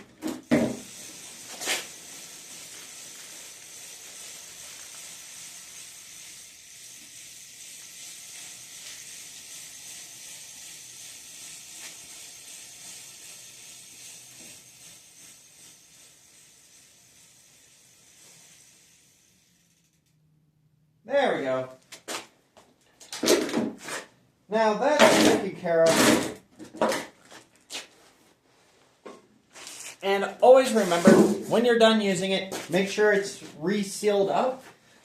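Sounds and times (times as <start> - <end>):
aerosol spray hissing: 0.7 - 19.2.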